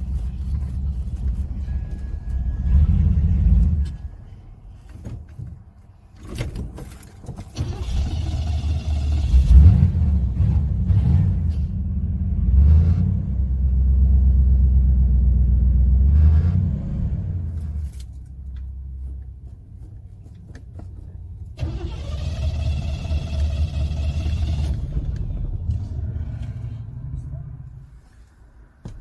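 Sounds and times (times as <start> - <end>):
car engine revving: 7.6 - 17.8.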